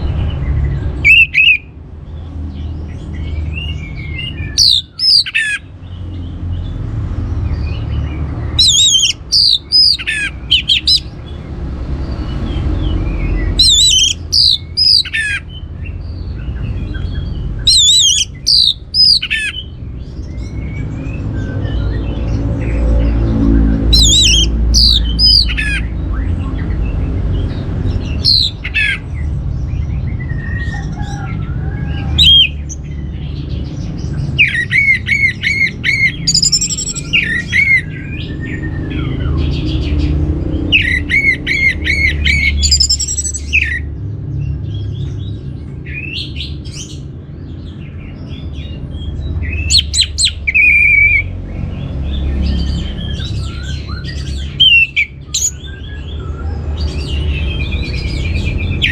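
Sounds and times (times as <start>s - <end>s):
thrush singing: 0.0s - 1.8s, 7.9s - 16.0s, 16.6s - 19.7s, 20.6s - 26.4s, 27.0s - 29.2s, 34.2s - 43.9s
steady low rumble: 0.0s - 4.6s
rapid bird chirps: 0.0s - 58.9s.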